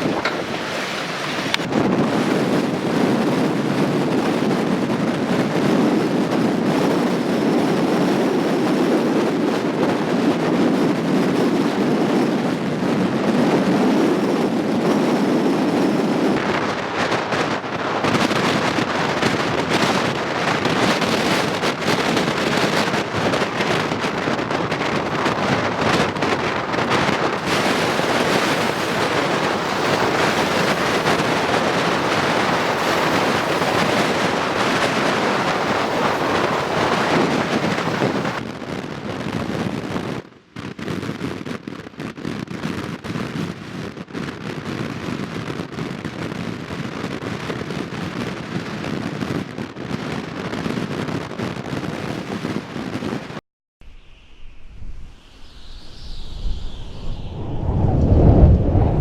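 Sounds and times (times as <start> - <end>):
rough ocean surf: 0.0 - 38.5
wind buffeting microphone: 0.0 - 59.0.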